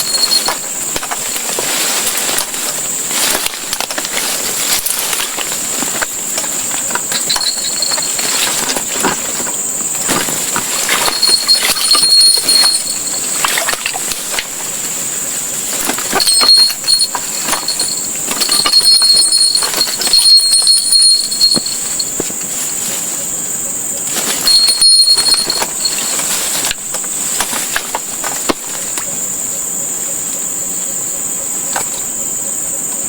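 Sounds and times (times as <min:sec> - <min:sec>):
high-pitched insect drone: 0:00.0 - 0:33.0.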